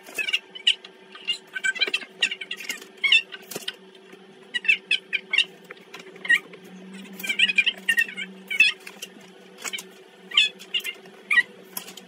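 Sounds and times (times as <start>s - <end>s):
small animal chirping: 0.0s - 3.9s, 4.5s - 12.0s
faint steady hum: 0.0s - 12.0s.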